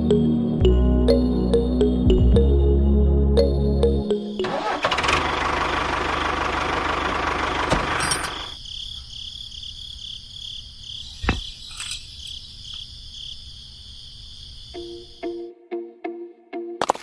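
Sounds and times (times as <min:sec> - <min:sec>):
rapid cricket-like chirping: 0:08.2 - 0:15.4.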